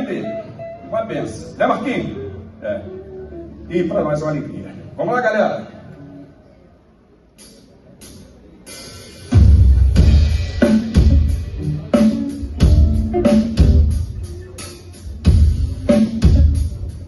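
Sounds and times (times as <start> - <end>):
live band playing: 0.0 - 4.9, 7.4 - 17.0
low bass line: 9.3 - 17.0
heavy kick drum beat: 9.4 - 11.9.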